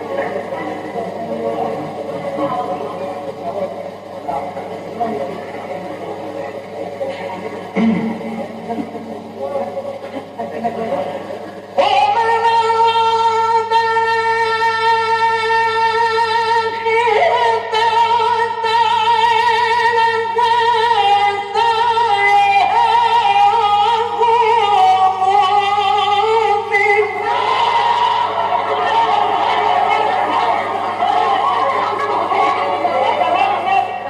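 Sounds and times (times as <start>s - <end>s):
low electrical hum: 0.0s - 34.0s
man reciting melismatic chant: 11.6s - 34.0s.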